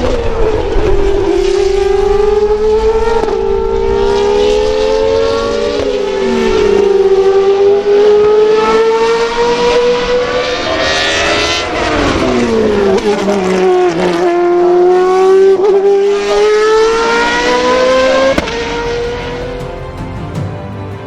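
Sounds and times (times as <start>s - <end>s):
racing car engine at high revs: 0.0s - 19.4s
second engine note: 18.3s - 21.0s.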